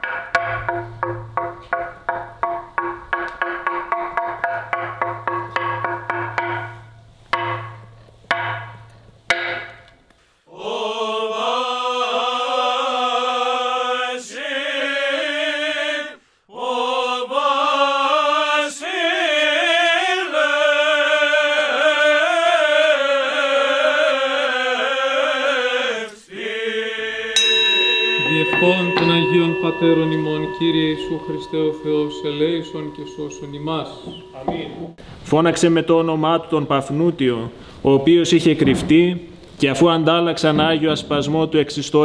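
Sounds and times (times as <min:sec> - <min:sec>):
chant singing: 0:10.5 - 0:35.0
struck ringing hits: 0:27.4 - 0:35.0.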